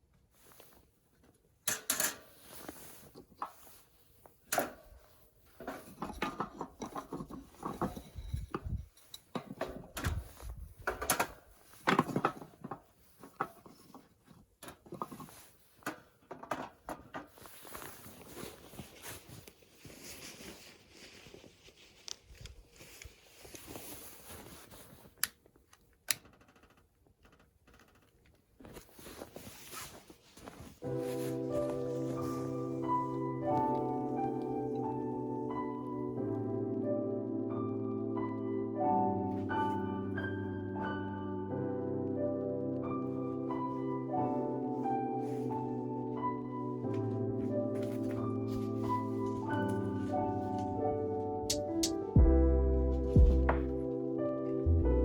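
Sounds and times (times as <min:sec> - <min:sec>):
hands handling camping gear: 0:00.2 - 0:26.1, 0:28.3 - 0:36.2, 0:43.4 - 0:52.2.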